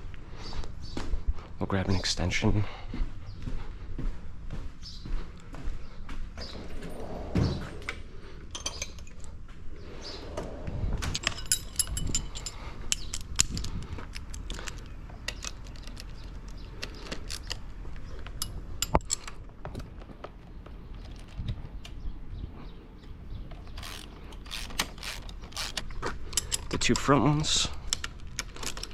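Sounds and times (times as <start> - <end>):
metal hand tools clinking: 11.1 - 19.4.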